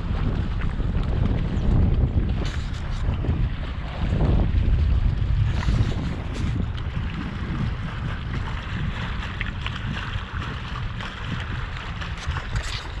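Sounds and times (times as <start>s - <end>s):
water splashing along boat hull: 0.0s - 13.0s
wind buffeting microphone: 0.0s - 13.0s.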